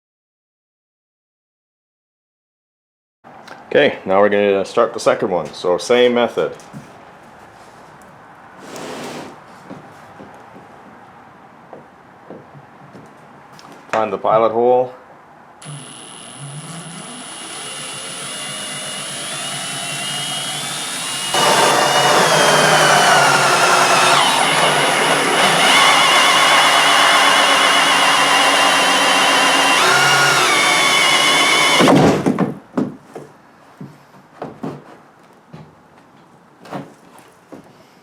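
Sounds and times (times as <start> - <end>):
drill with hole saw cutting plastic: 15.6 - 32.3.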